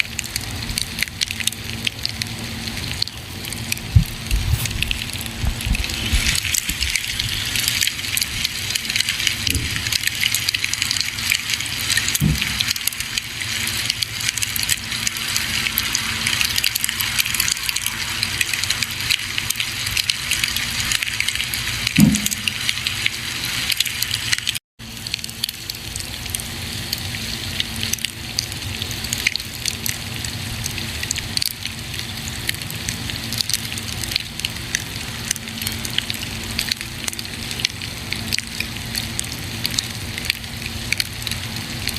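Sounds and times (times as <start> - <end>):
campfire crackling: 0.1 - 24.6
fire popping: 3.0 - 20.6.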